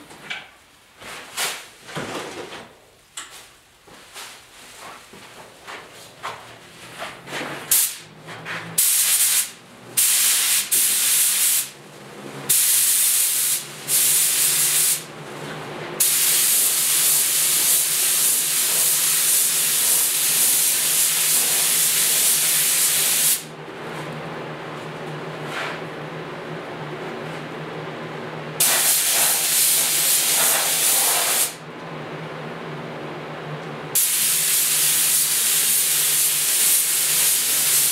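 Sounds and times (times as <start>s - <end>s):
spray gun hissing: 8.8s - 11.7s, 12.5s - 15.1s, 16.0s - 23.5s, 28.6s - 31.6s, 34.0s - 37.9s.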